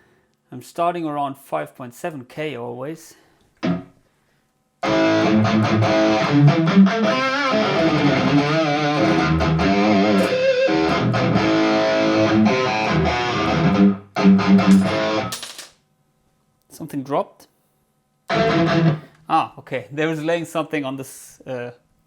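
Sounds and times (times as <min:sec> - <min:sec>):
electric guitar rhythm part: 0:03.6 - 0:03.9, 0:04.8 - 0:15.4, 0:18.3 - 0:19.1.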